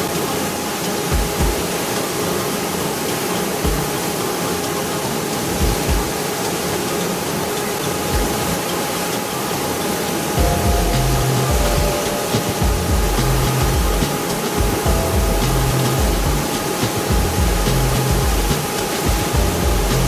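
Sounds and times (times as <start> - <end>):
dull low thumps: 12.6 - 20.0.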